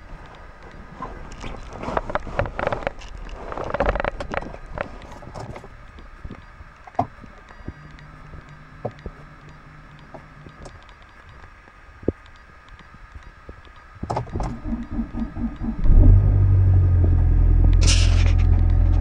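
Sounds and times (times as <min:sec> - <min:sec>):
faint steady hum: 0:00.0 - 0:19.0
rustling against microphone: 0:00.1 - 0:07.3
clicks: 0:00.2 - 0:16.2.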